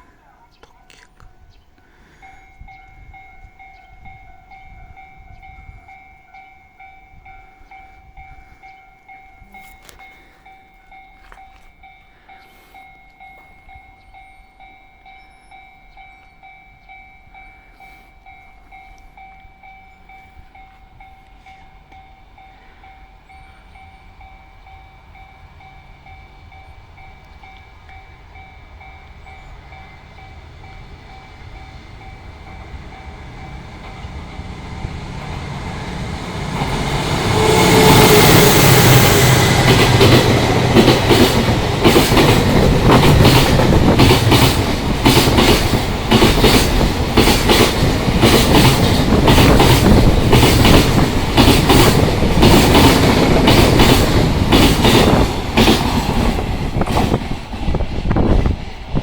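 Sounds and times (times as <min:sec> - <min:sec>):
freight train passing: 0:00.0 - 0:59.0
wheels clattering over rail joints: 0:39.6 - 0:57.8.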